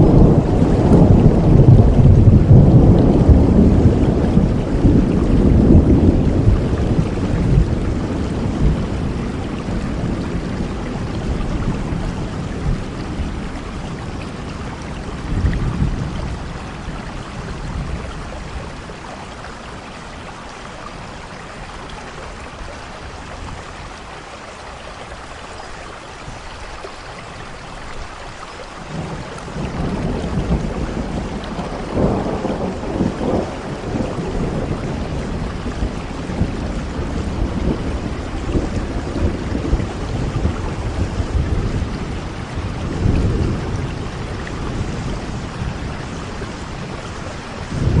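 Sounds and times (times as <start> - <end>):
rolling thunder: 0.0 - 19.0, 28.9 - 48.0
heavy rain falling: 0.0 - 48.0.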